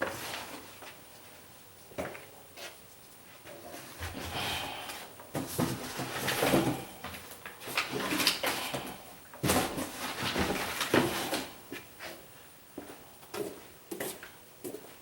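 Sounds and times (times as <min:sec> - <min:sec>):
rustling of things handled: 0:05.3 - 0:15.0.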